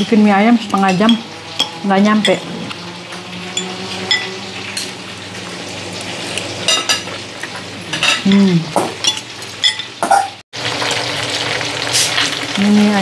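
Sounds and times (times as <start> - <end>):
chicken sizzling in a pan: 2.7 - 13.0.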